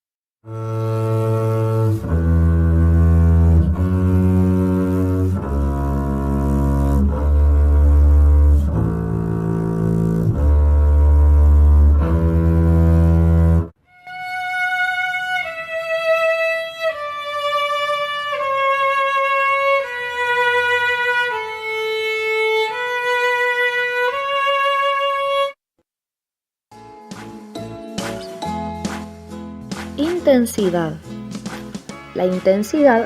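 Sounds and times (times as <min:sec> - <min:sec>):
double bass bowed notes: 0:00.5 - 0:13.7.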